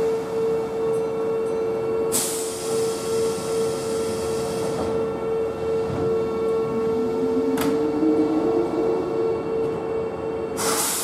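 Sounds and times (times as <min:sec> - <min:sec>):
electric train hum: 0:00.0 - 0:11.0
low rising motor whine: 0:05.0 - 0:10.6
air hiss: 0:10.6 - 0:11.0.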